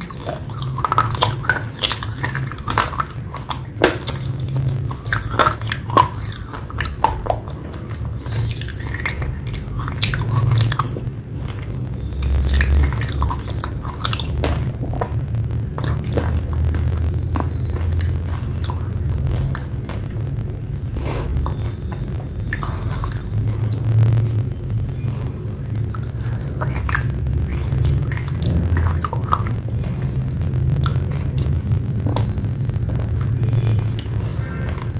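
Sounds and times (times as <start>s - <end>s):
chewing wet clay: 0.0s - 34.9s
steady low rumble: 0.0s - 34.9s
sticky mouth clicks: 0.0s - 34.9s.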